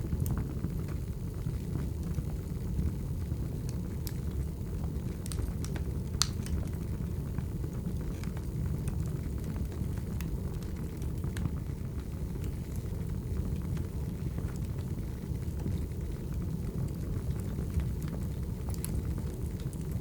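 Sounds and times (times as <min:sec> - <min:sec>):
fire low rumble: 0:00.0 - 0:20.0
wood fire crackling: 0:00.0 - 0:20.0
firewood pops and snaps: 0:05.3 - 0:06.6.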